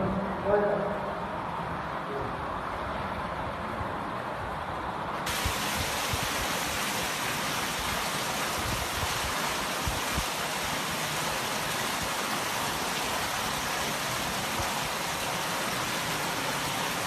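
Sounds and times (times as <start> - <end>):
water fountain splashing: 5.2 - 17.0.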